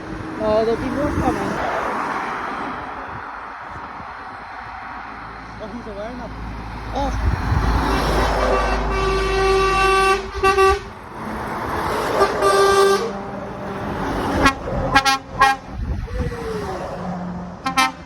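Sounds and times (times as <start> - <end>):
heavy diesel engines rumbling: 0.0 - 18.0
lorry air horns: 8.2 - 10.9, 12.1 - 15.7, 17.6 - 18.0.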